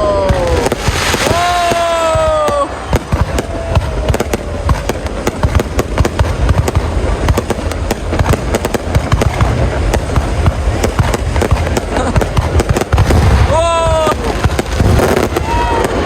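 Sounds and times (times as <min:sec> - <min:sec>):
fireworks booming thumps: 0:00.0 - 0:16.0
fireworks cracking: 0:00.0 - 0:16.0.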